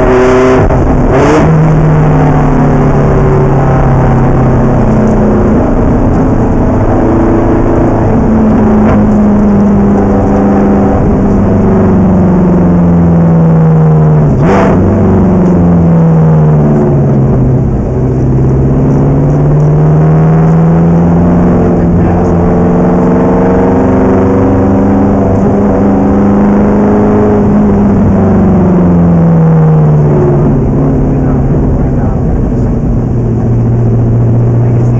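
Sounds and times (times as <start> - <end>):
race car engine at speed: 0.0 - 34.9.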